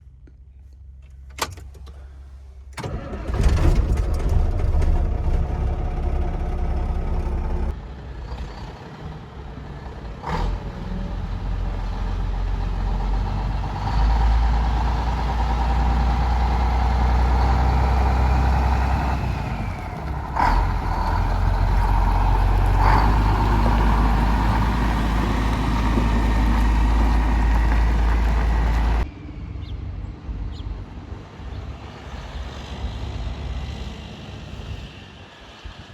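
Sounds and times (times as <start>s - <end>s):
diesel truck engine running: 2.7s - 29.1s.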